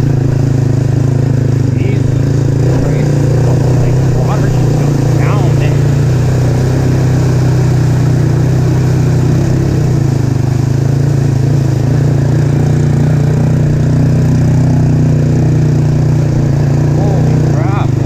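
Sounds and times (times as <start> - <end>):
atv engine running: 0.0 - 18.0.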